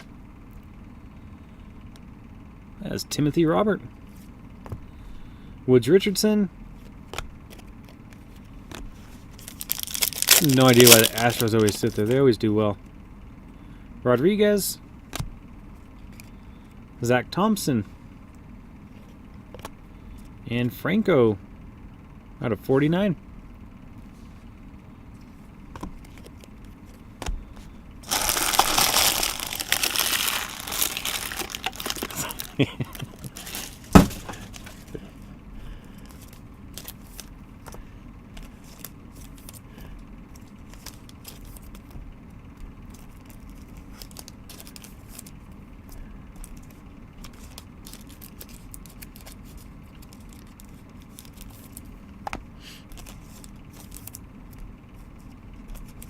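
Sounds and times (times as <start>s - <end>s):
plastic wrapping crinkling and tearing: 9.4s - 12.2s, 28.0s - 35.0s, 43.0s - 45.3s, 47.3s - 51.8s.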